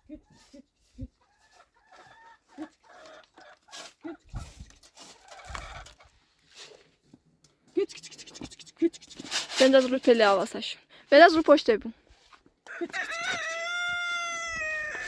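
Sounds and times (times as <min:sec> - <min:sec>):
chickens clucking: 0:00.1 - 0:06.2.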